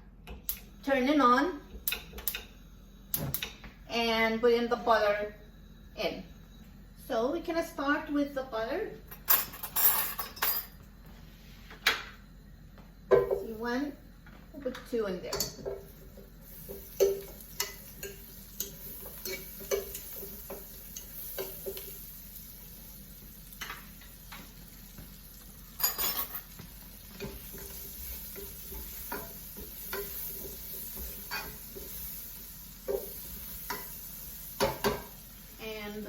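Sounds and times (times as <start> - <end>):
butter sizzling in a frying pan: 15.6 - 36.0.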